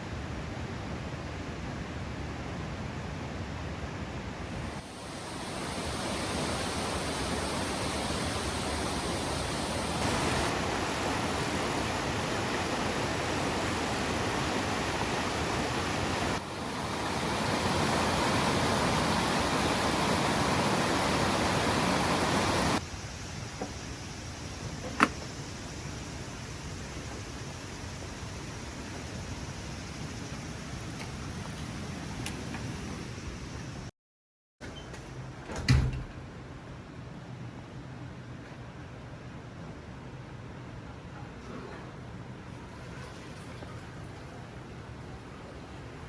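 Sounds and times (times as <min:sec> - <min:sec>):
steady rain: 0:04.6 - 0:22.8.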